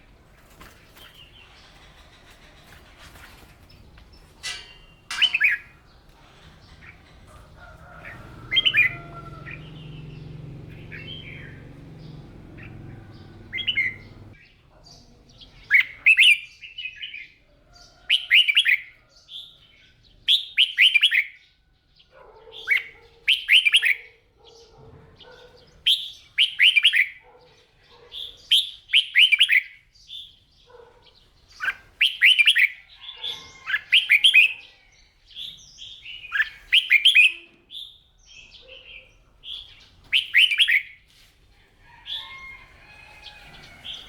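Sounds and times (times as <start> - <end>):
bird singing warbled whistles: 36.3 - 37.4, 40.1 - 40.9.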